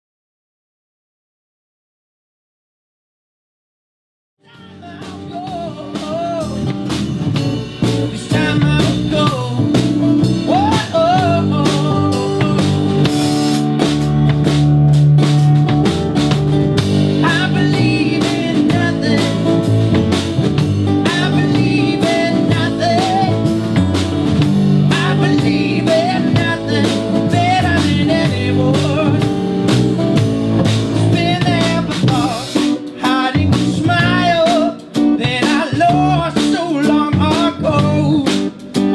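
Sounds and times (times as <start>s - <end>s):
person singing: 4.4s - 6.8s, 8.0s - 13.1s, 17.2s - 19.7s, 21.0s - 23.7s, 24.8s - 29.4s, 31.0s - 38.6s
drum kit: 4.4s - 38.9s
electric guitar: 4.4s - 38.9s.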